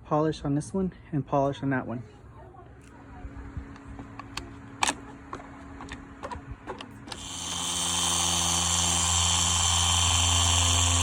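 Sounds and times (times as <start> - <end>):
cordless polisher humming: 3.7 - 11.0.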